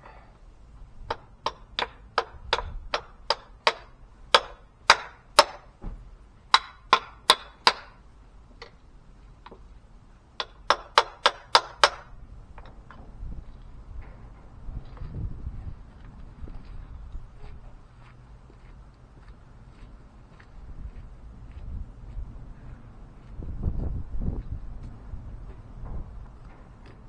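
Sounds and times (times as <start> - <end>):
hammer striking steel driver: 1.1 - 5.7, 6.5 - 8.0, 10.4 - 12.1.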